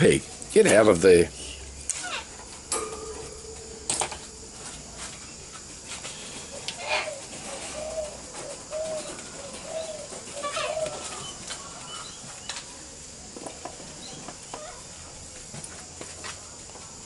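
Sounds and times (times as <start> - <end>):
bird cooing: 6.3 - 12.2.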